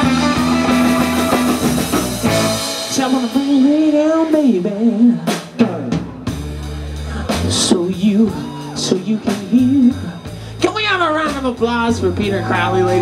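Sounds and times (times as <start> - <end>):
bending electric guitar lead: 0.0 - 3.6, 11.9 - 13.0
blues-rock band playing: 0.0 - 13.0.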